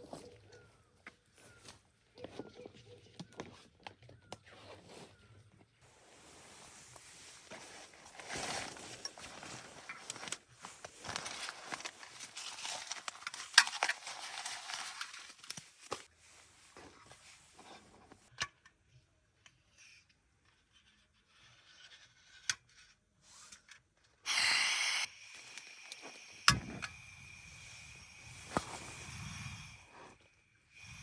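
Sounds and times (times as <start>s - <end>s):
rustling and crinkling handling: 1.4s - 18.3s
loud hiss: 24.3s - 30.0s.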